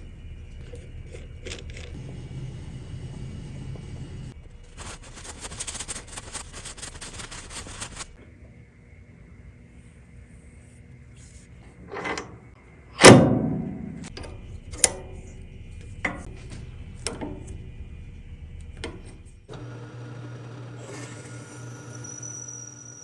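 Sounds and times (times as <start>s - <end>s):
machine motor humming: 0.0s - 4.6s, 13.0s - 22.0s
loud metal clank: 13.0s - 15.1s.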